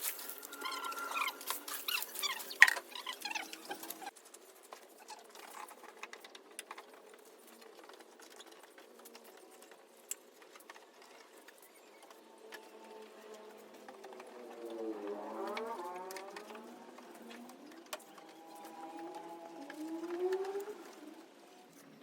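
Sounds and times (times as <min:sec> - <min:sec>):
high-pitched bird chirping: 0:00.0 - 0:04.1.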